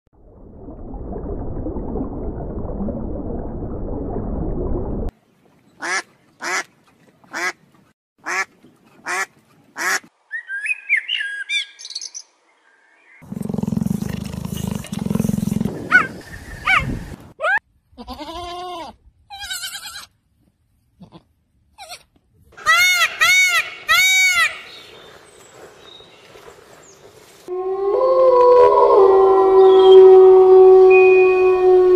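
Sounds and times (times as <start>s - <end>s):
loud rough low sound: 0.2s - 5.1s.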